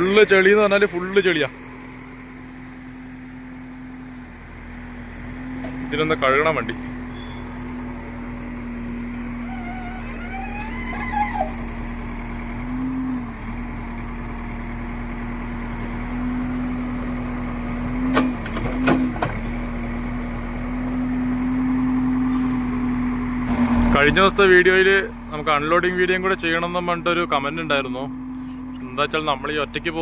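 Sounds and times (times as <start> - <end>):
diesel truck engine running: 0.0 - 30.0.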